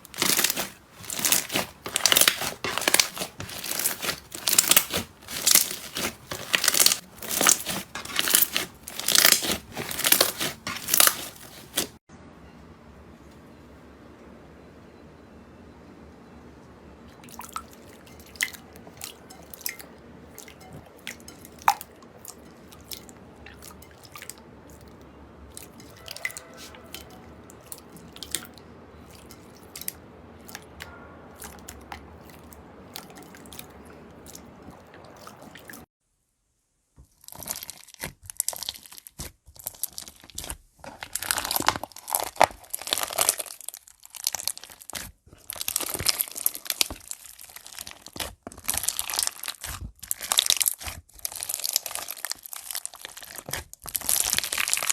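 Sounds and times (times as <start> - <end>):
crunchy slime crackling: 0.0 - 12.0, 25.5 - 35.8, 37.1 - 54.9
slime clicking and popping: 0.2 - 11.3.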